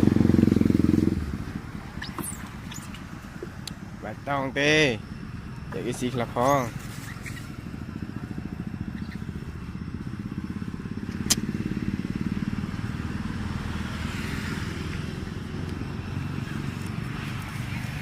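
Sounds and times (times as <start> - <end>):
sharp click: 11.1 - 11.5.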